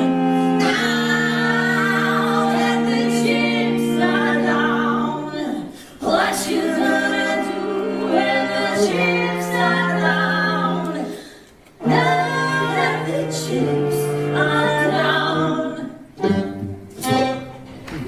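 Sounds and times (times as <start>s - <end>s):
voices singing in harmony: 0.0s - 17.3s.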